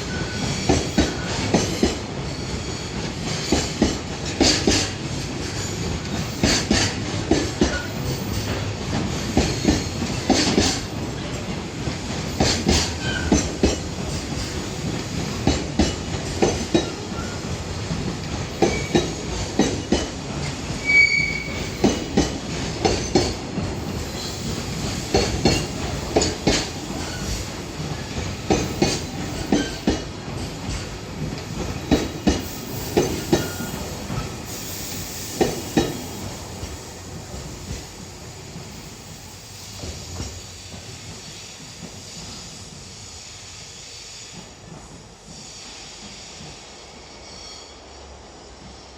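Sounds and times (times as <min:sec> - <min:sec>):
train wheels clacking over rail joints: 0:00.0 - 0:43.1
train rumble: 0:00.0 - 0:48.9
high wheel squeal: 0:20.8 - 0:21.9, 0:32.5 - 0:35.3.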